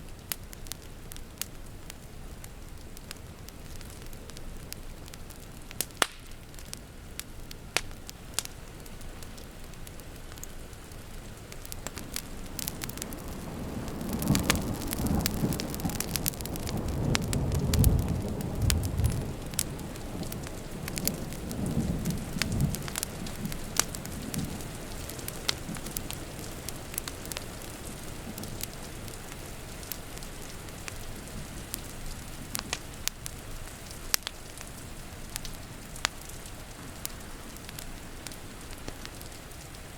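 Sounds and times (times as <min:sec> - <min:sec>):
steady rain: 0:00.0 - 0:39.9
wood fire crackling: 0:00.0 - 0:39.9
thunder rumbling: 0:12.8 - 0:27.0.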